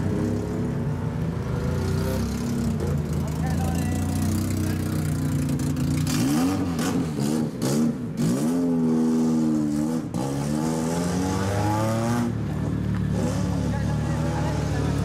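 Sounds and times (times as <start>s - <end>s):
car engine revving: 4.0s - 15.0s.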